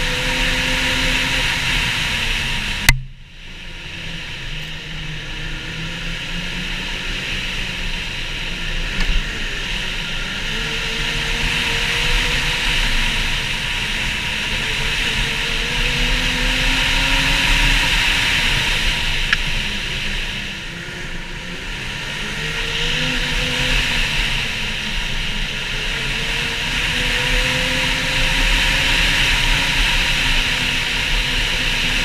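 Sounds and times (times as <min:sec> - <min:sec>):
snowmobile engine running: 0:00.0 - 0:32.0
snowmobile track noise: 0:00.0 - 0:32.0.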